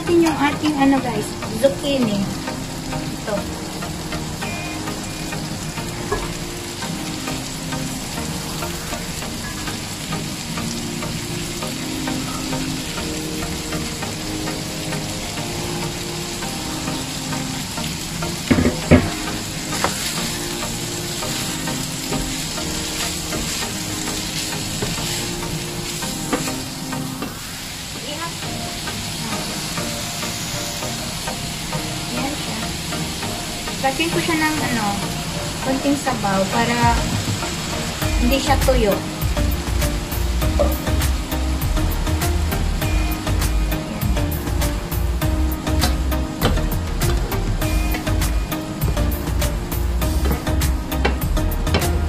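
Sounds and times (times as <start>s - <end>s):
food sizzling in a frying pan: 0.0s - 52.0s.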